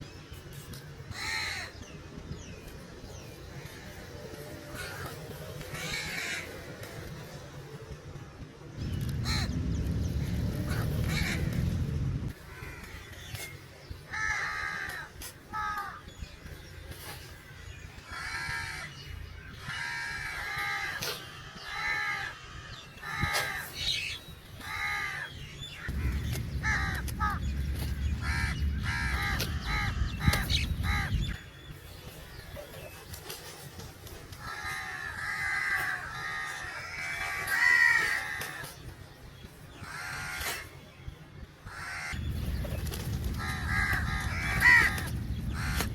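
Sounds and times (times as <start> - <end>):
crows cawing: 1.1 - 1.8, 4.7 - 7.0, 9.2 - 9.6, 10.7 - 11.6, 12.4 - 13.3, 14.1 - 16.0, 18.0 - 31.4, 34.4 - 38.8, 39.7 - 40.6, 41.7 - 42.4, 43.3 - 45.9
low rumble: 8.2 - 13.0, 25.4 - 31.8, 42.1 - 45.9.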